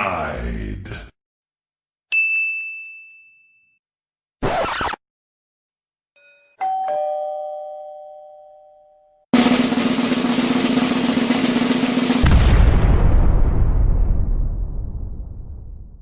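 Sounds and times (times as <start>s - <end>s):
two-tone doorbell chime: 2.2s - 3.8s, 6.2s - 9.3s
drum roll: 9.4s - 14.3s
deep boom: 9.5s - 16.0s.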